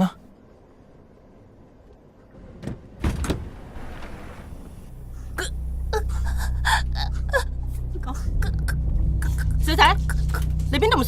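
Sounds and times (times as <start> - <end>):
steady low rumble: 0.2 - 11.0
woman gasping and choking: 5.4 - 10.6.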